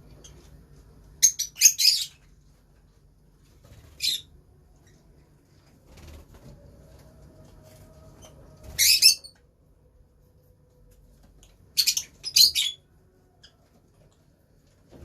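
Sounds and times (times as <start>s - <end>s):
lovebirds chirping: 1.2s - 2.4s, 11.4s - 13.7s.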